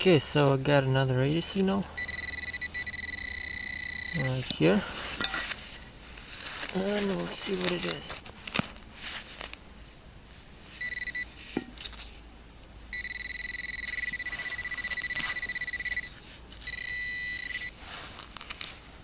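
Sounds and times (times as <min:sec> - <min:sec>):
metal detector beeping: 0:01.9 - 0:04.7, 0:10.8 - 0:11.4, 0:12.9 - 0:17.8
digging in soil: 0:04.1 - 0:09.6.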